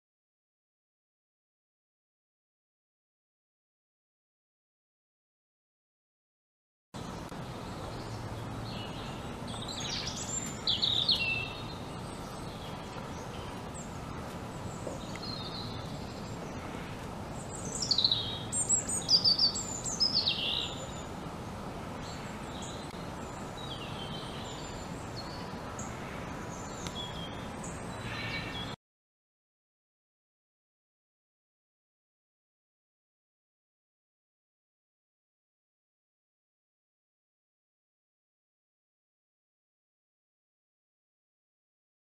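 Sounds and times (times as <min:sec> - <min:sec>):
small birds chirping: 0:07.0 - 0:28.8
steady background hiss: 0:07.0 - 0:28.8.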